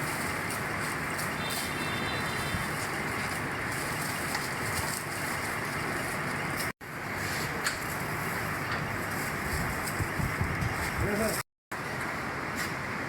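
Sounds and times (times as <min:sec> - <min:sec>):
rope-making machinery running: 0:00.0 - 0:06.7.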